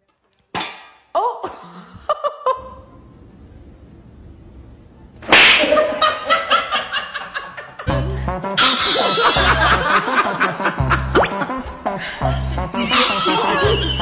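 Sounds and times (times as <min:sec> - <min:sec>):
person laughing: 0:05.6 - 0:14.0.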